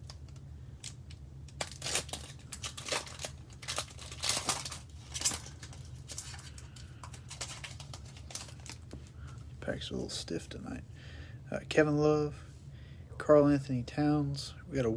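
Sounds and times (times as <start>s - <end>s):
foil wrapper tearing and crinkling: 0.0s - 9.4s.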